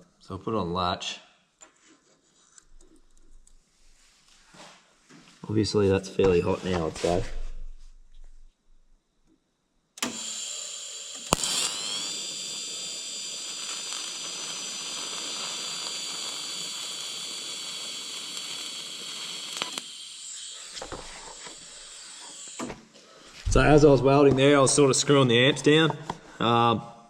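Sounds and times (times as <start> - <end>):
welding arc striking crack: 10.0 - 22.9
welding arc hissing and whining: 10.0 - 25.1.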